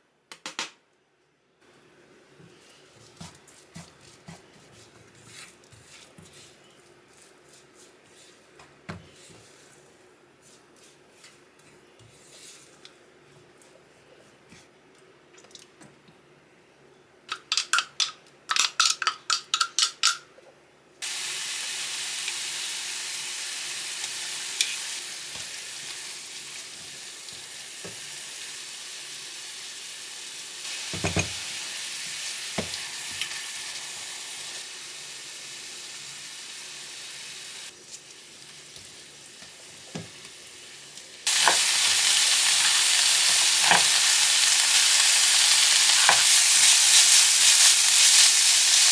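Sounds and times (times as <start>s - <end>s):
food sizzling in a frying pan: 21.0s - 48.9s.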